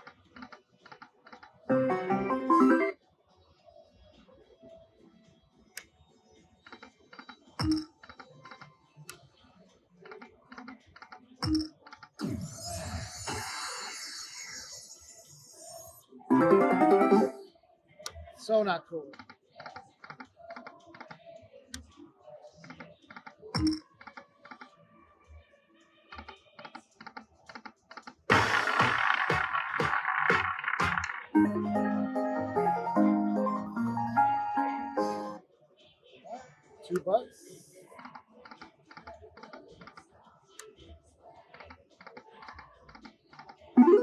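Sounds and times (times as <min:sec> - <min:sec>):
slot machine reels clicking: 0:28.3 - 0:31.4.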